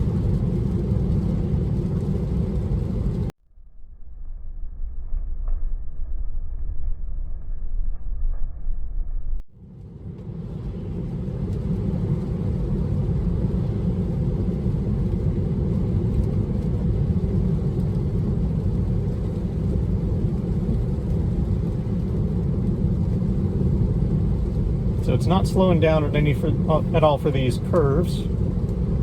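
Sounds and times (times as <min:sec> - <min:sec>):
road and tyre noise in car cabin: 0:00.0 - 0:03.4, 0:09.6 - 0:29.0.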